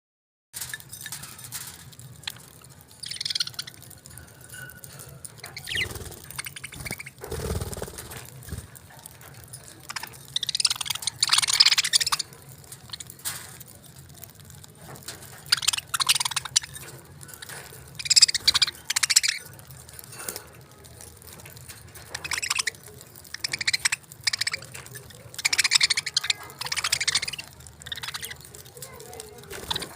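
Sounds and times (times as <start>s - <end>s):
budgerigars chirping: 3.0s - 3.8s, 5.4s - 8.1s, 9.9s - 12.3s, 15.4s - 19.5s, 22.1s - 28.5s.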